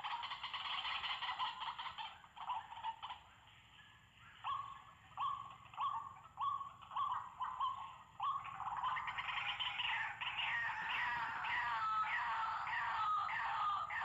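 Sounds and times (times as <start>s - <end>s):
waterhen calling harsh notes: 6.0s - 14.0s.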